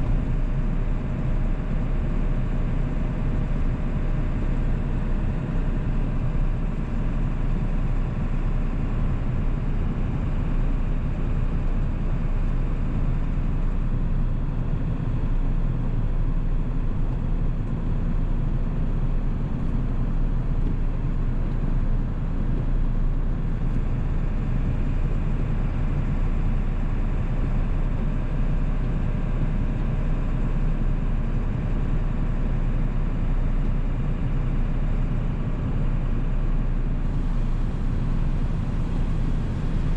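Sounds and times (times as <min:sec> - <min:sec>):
diesel engine droning: 0:35.4 - 0:39.9
road noise: 0:37.1 - 0:39.9.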